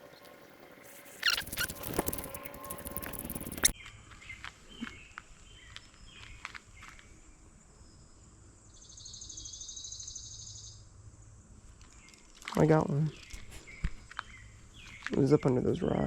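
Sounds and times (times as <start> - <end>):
rustling crackling noise: 0.0 - 3.8
high-pitched animal trill: 1.1 - 3.7
short high chirps: 1.1 - 3.7.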